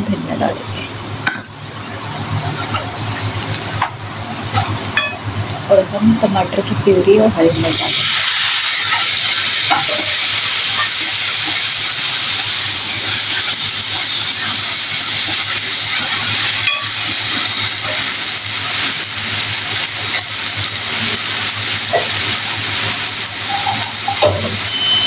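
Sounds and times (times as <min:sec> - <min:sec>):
food sizzling in hot oil: 0:00.4 - 0:25.0.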